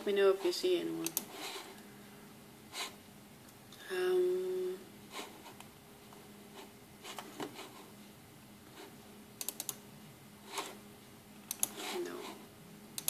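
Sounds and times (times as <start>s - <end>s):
faint steady hum: 0.0s - 13.0s
computer mouse clicks: 1.0s - 1.3s, 9.4s - 9.8s, 11.5s - 12.0s.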